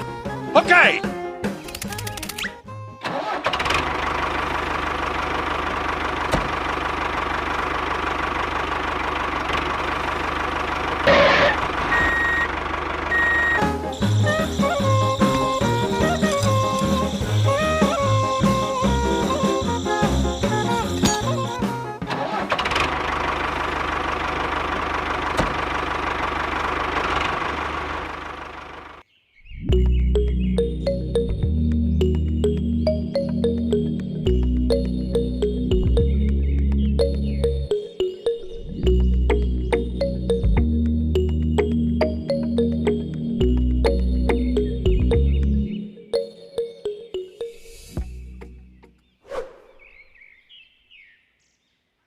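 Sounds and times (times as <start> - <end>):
engine starting and idling: 1.6 - 29.0.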